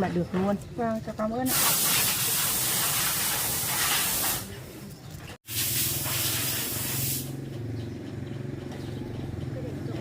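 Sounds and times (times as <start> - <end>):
loud hissing noise: 1.5 - 4.6, 5.5 - 7.4.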